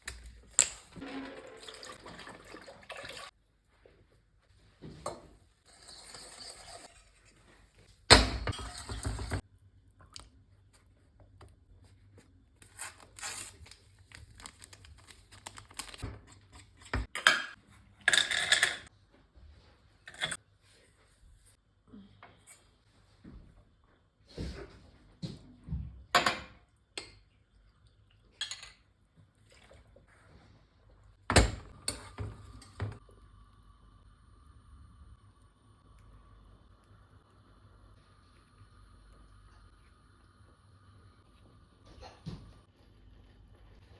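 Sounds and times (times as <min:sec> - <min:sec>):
water running: 0:00.5 - 0:03.4.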